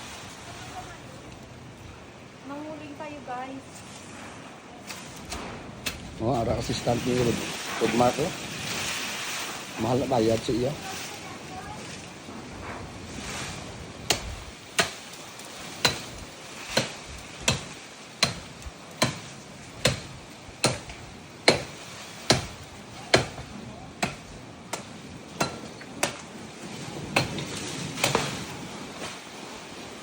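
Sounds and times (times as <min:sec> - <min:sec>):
blade chopping wood: 0:15.8 - 0:21.7, 0:27.2 - 0:28.4.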